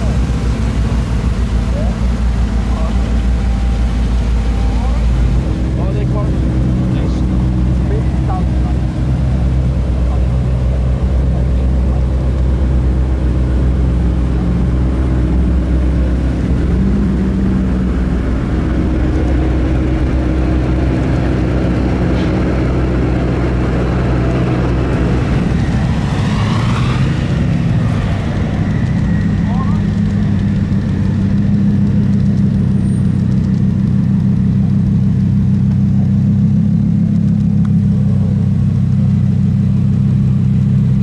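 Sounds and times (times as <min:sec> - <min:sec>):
car engine running: 0:00.0 - 0:41.0
brief rising sound: 0:24.3 - 0:30.8.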